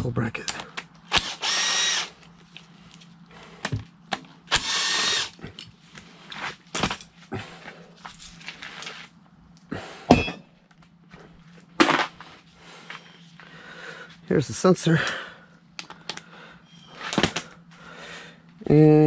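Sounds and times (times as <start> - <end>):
power tool burst: 1.1 - 2.1, 4.5 - 5.4.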